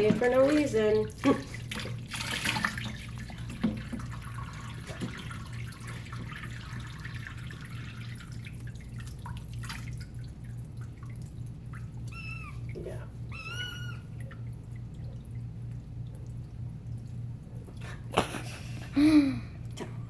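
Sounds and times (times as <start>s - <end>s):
water dripping into a sink: 0.0s - 17.8s
steady low hum: 0.0s - 20.0s.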